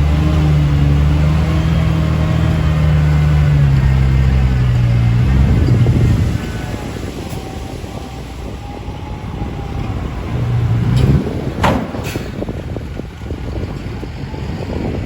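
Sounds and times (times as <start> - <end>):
diesel truck engine running: 0.0 - 15.0
sharp knocks: 11.0 - 12.6.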